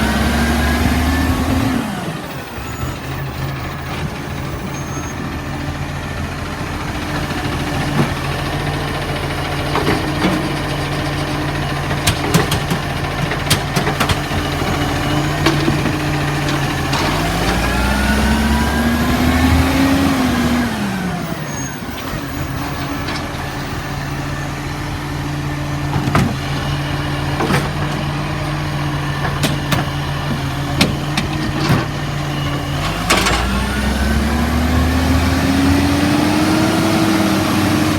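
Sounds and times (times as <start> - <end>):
truck diesel engine idling: 0.0 - 36.2
clunks and knocks: 7.1 - 8.4, 9.4 - 10.9, 11.8 - 20.0, 25.7 - 33.7.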